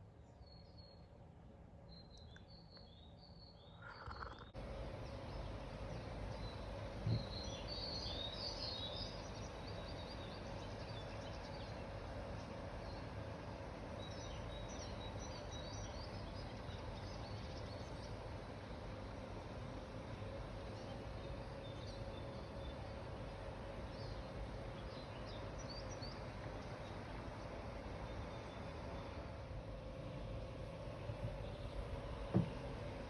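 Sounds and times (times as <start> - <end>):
outdoor background hiss: 0.0 - 33.0
small birds chirping: 1.9 - 19.5, 20.1 - 33.0
soft thump: 32.2 - 32.7.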